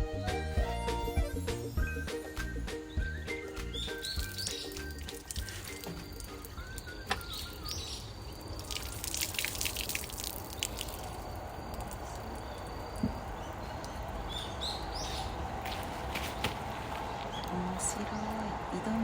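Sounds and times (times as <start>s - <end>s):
outdoor background: 0.0s - 19.0s
bird chirps: 1.3s - 9.0s, 11.6s - 15.9s
water dripping: 3.0s - 18.8s.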